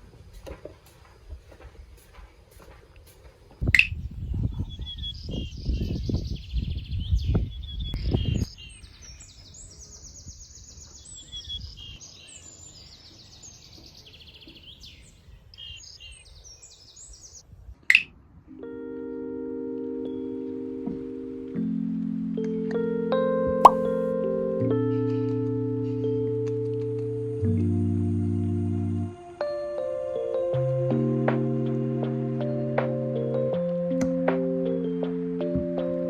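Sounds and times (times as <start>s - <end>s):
birds chirping: 0.0s - 18.1s.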